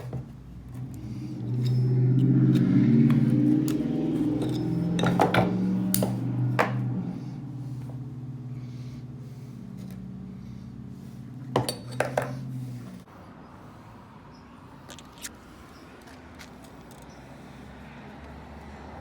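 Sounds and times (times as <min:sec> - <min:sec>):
steady low hum: 0:00.1 - 0:14.6
sharp metallic clinks: 0:03.6 - 0:06.3.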